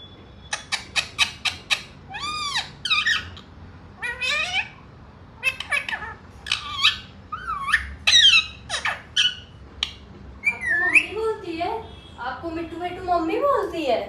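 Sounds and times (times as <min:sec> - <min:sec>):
parakeet squawking and chattering: 0:00.4 - 0:11.4.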